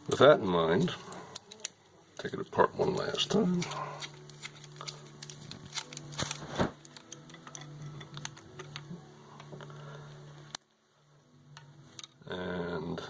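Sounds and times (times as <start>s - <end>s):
metal parts clicking and tapping: 3.6s - 8.9s, 11.6s - 12.2s.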